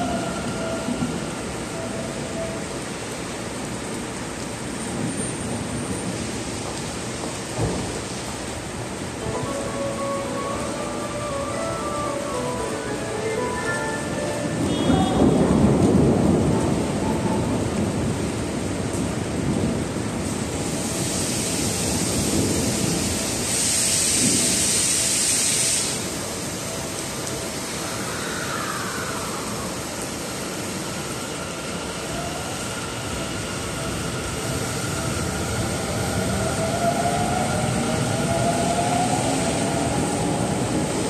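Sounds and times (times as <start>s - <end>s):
heavy rain: 0.0s - 41.0s
loud hiss: 20.6s - 26.4s.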